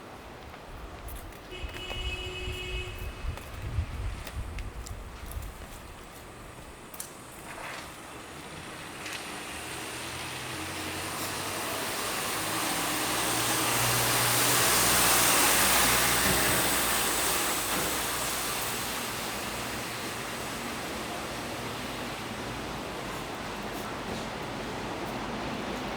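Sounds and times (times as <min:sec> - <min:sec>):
vehicle driving past: 0:08.5 - 0:19.3.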